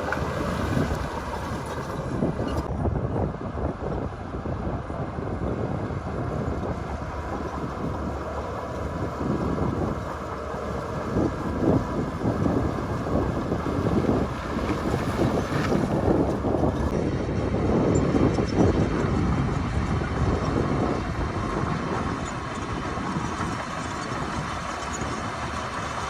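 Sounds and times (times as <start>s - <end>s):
heavy diesel machinery running: 0.0s - 26.0s
wind buffeting microphone: 0.0s - 26.0s.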